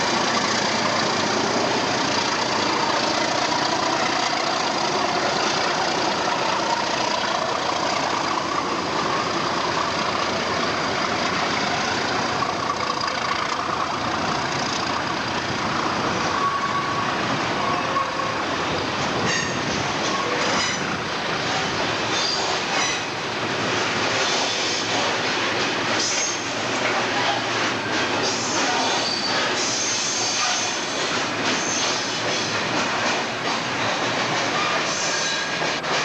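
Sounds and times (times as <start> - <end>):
train rumbling on rails: 0.0 - 36.0
train wheels clicking and squealing: 0.0 - 36.0.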